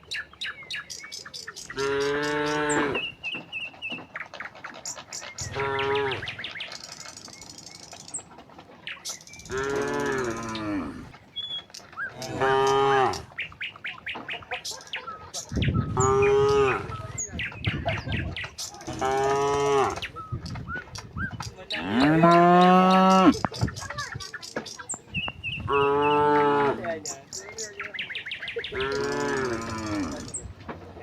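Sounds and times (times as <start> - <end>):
small birds chirping: 0.0 - 31.0
cows mooing: 1.7 - 3.1, 5.4 - 6.5, 9.4 - 11.2, 12.0 - 13.4, 15.9 - 17.2, 18.8 - 20.1, 21.7 - 23.4, 25.6 - 27.1, 28.7 - 30.4.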